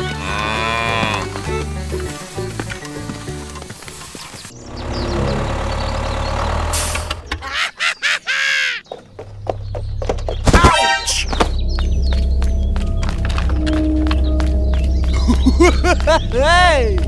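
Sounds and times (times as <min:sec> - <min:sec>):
low motor hum: 0:04.5 - 0:07.5, 0:09.0 - 0:17.0
falling horn-like tone: 0:10.6 - 0:15.4.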